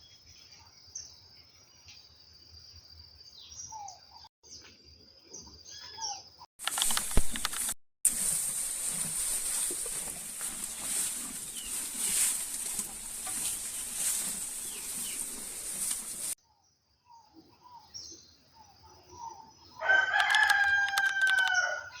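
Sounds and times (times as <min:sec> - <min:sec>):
rooster crowing: 0:19.8 - 0:22.0.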